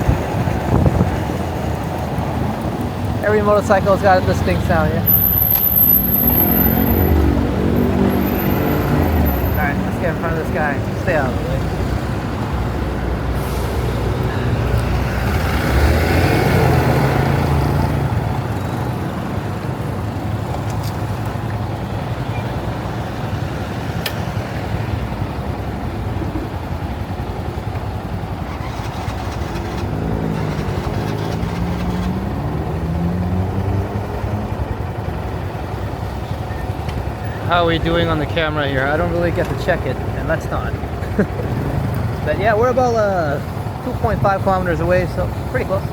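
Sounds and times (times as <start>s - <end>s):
wind noise on microphone: 0.0s - 3.2s
small motorcycle engine accelerating: 5.1s - 9.8s, 28.3s - 34.8s.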